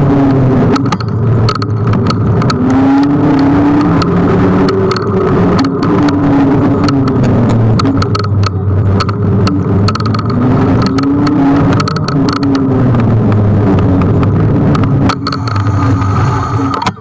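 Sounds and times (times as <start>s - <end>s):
steady low hum: 0.0s - 17.0s
clicks and rattles: 0.7s - 17.0s
electric motor whine: 9.2s - 17.0s.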